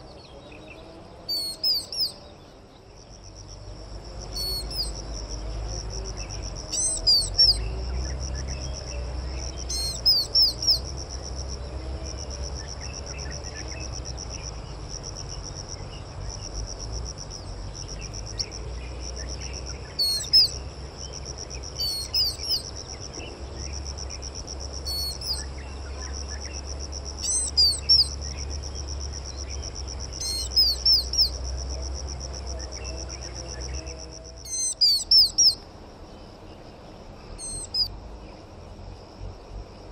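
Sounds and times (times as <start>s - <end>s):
songbird calling: 0.0s - 38.5s
high insect-like trill: 8.2s - 35.6s.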